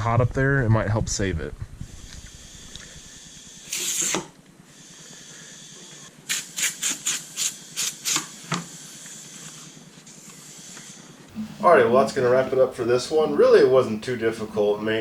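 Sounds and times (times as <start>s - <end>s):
aerosol can spraying: 3.7s - 4.3s, 6.2s - 9.6s.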